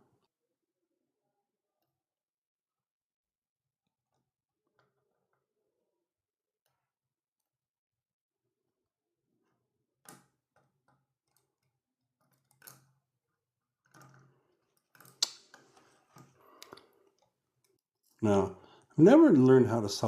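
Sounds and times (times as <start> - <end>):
small clicks and taps of tools: 10.0 - 12.9.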